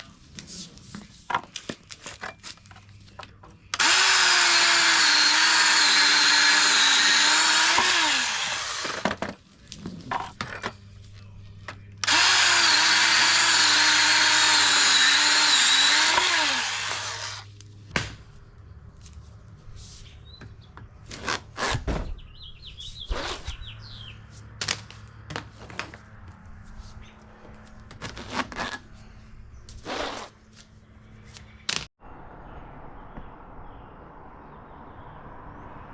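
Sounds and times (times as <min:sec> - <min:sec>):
power tool motor running: 0:03.8 - 0:09.0, 0:12.0 - 0:17.5.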